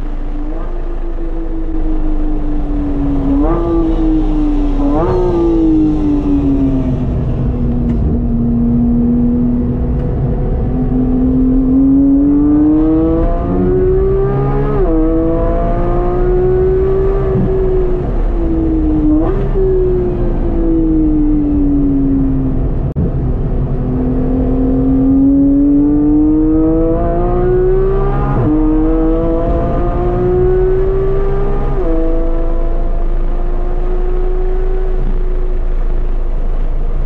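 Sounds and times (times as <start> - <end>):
sports car engine revving: 0.0 - 37.0.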